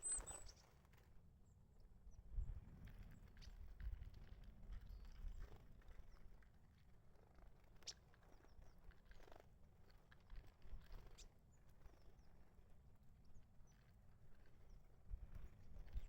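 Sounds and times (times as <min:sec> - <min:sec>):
small birds chirping: 0:00.0 - 0:00.7.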